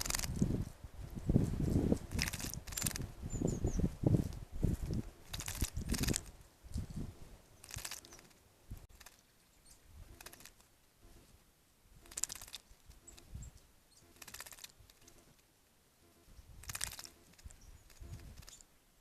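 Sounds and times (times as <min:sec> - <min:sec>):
bird splashing in water: 0:12.0 - 0:12.6.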